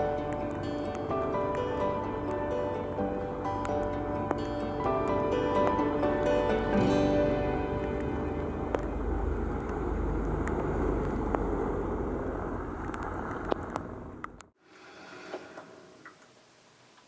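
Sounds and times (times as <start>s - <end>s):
steady low rumbling: 3.0s - 13.3s.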